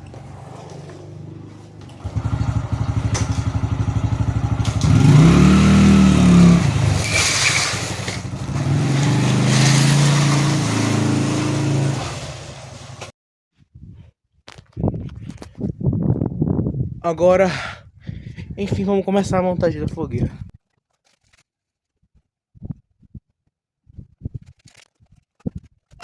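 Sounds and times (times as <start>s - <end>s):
small motorcycle engine: 0.0s - 13.1s.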